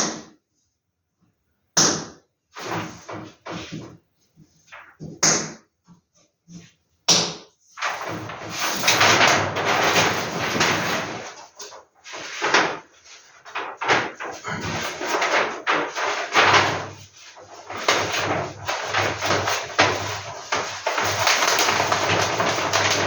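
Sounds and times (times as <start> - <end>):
paper rustling: 2.6 - 5.0, 7.8 - 23.0
paper taps: 7.8 - 23.0
paper snapping: 17.6 - 23.0.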